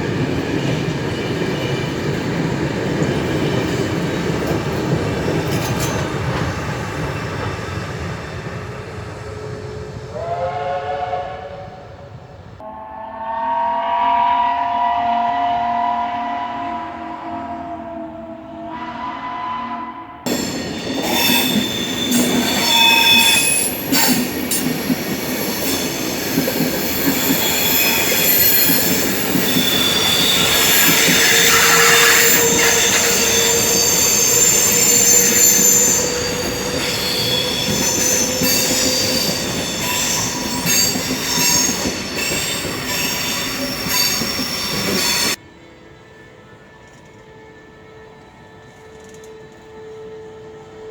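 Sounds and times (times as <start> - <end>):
high squealing tones: 25.7 - 45.4.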